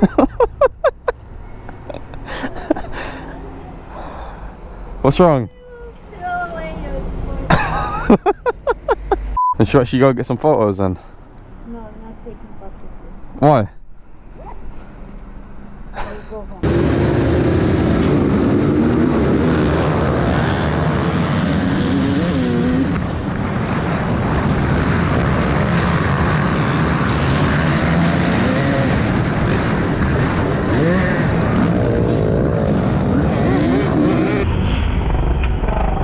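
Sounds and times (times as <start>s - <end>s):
motorcycle engines revving: 16.6s - 23.4s, 24.2s - 34.5s.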